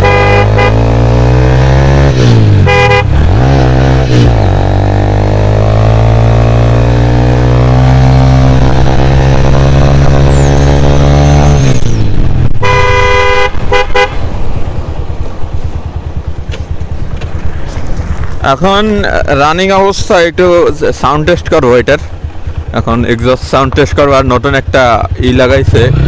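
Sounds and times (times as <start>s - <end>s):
vehicle horn: 0.0s - 1.3s, 2.6s - 3.4s, 12.6s - 14.3s
motorcycle engine revving: 0.0s - 18.4s, 24.6s - 26.0s
motorcycle engine idling: 14.2s - 18.4s, 21.7s - 25.7s.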